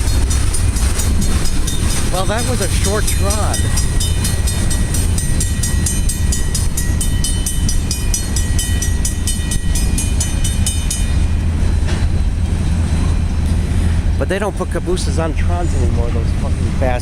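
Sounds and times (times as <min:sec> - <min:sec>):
crossing bell ringing rapidly: 0:00.0 - 0:13.3
steady low rumble: 0:00.0 - 0:17.0.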